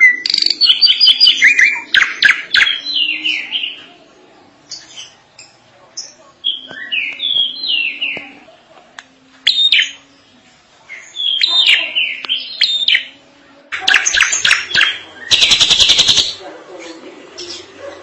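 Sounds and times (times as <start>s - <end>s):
bird whistling song: 0.0s - 3.9s, 6.0s - 8.2s, 9.4s - 10.0s, 11.0s - 13.2s, 13.9s - 16.4s
bird harsh chattering: 11.0s - 16.4s.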